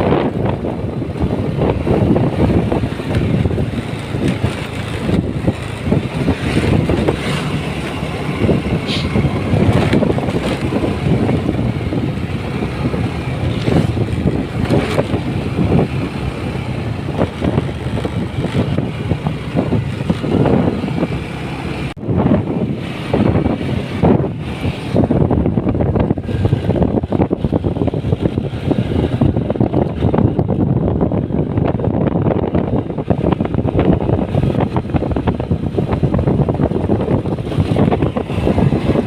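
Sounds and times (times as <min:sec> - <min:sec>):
motorcycle engine: 0:00.0 - 0:39.0.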